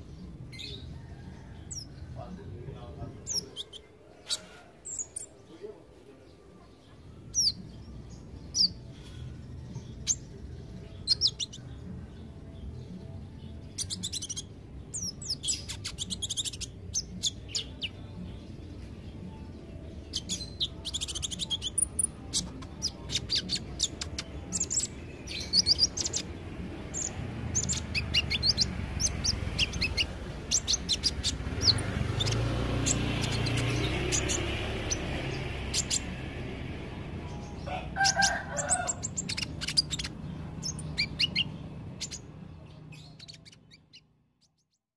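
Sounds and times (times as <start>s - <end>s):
small bird high chirps: 3.2s - 5.5s, 6.6s - 44.9s.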